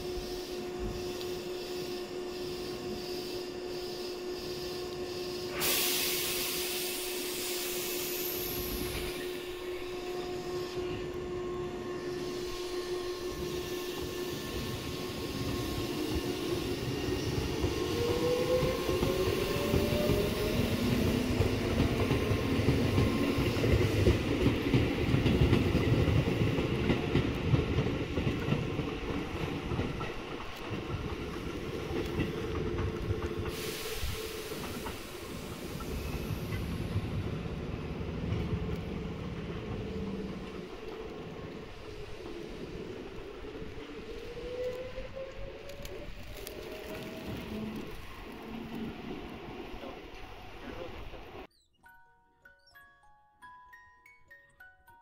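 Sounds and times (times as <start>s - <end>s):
electric train motor whine: 0.0s - 21.8s
wheels rumbling on rails: 8.4s - 51.5s.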